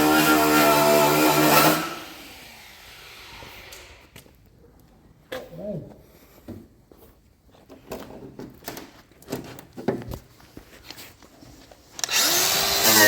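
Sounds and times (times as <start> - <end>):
handheld power tool running: 12.0 - 13.0.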